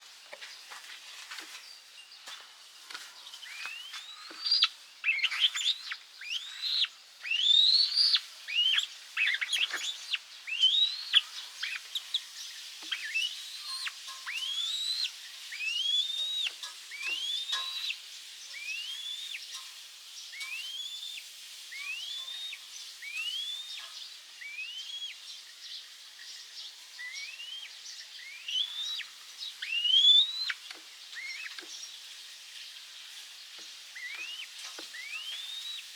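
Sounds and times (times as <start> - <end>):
bird whistling rising notes: 21.8 - 23.7, 24.4 - 25.1.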